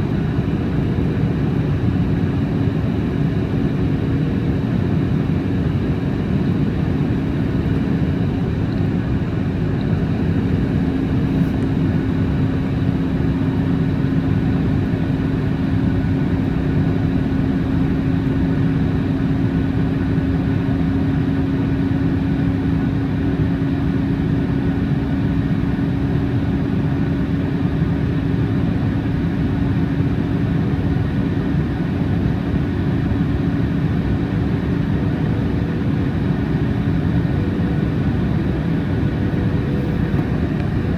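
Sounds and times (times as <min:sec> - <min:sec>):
jet engine hum: 0:00.0 - 0:40.9
rush of airflow: 0:37.5 - 0:40.9.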